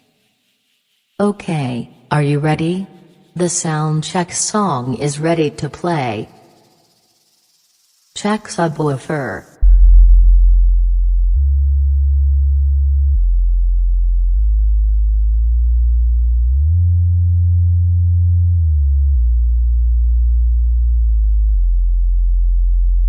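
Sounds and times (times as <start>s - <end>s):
deep sine tones: 9.4s - 23.0s.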